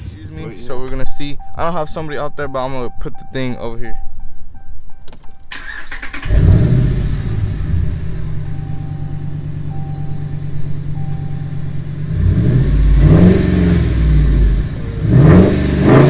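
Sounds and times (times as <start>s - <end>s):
truck engine idling and revving: 5.5s - 16.0s.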